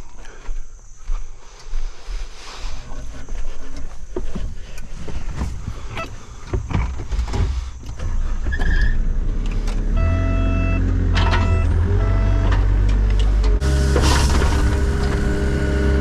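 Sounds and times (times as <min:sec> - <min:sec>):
hydraulic whine: 0:07.9 - 0:16.0
heavy equipment engine running: 0:08.0 - 0:16.0.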